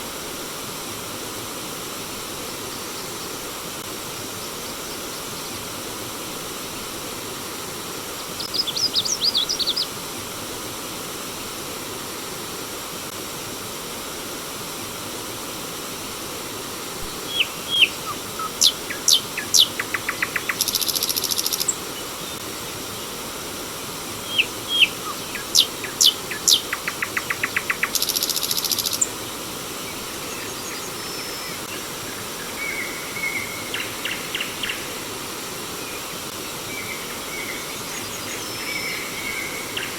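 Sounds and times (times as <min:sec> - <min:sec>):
stream water flowing: 0:00.0 - 0:39.9
birds singing: 0:08.4 - 0:09.9, 0:17.1 - 0:22.4, 0:24.2 - 0:29.2.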